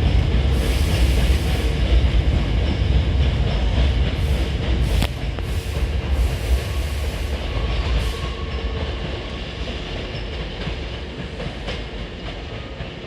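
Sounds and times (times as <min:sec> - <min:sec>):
electric train rumbling: 0:00.0 - 0:13.0
train wheels clacking on rail joints: 0:00.0 - 0:13.0.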